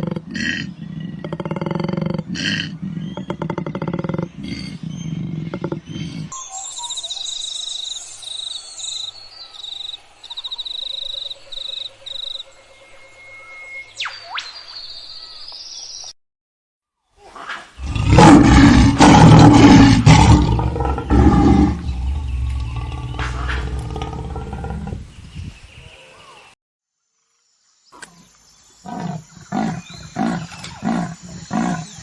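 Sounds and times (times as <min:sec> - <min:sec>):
low animal roar: 0:17.8 - 0:25.0.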